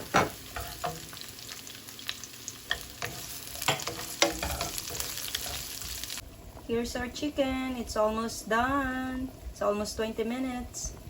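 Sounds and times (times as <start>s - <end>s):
food sizzling in oil: 0.0s - 6.2s
utensil scraping a pan: 2.7s - 6.0s.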